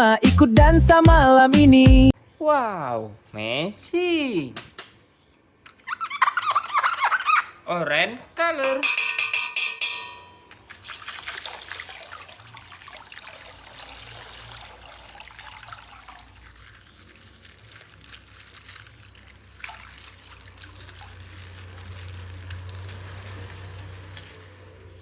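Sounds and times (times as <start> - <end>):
plastic packaging crinkling: 15.7 - 24.7.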